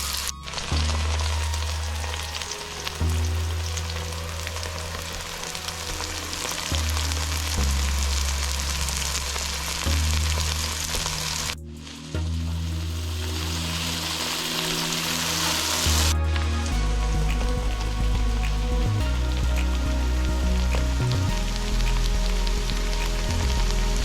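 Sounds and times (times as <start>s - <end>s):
food sizzling in hot oil: 0.0s - 11.6s
background music bass notes: 0.0s - 24.0s.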